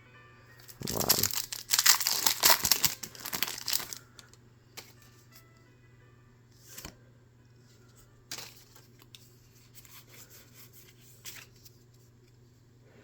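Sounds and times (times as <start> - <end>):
low steady hum: 0.0 - 13.0
cards rustling by hand: 0.6 - 5.2, 8.3 - 12.1.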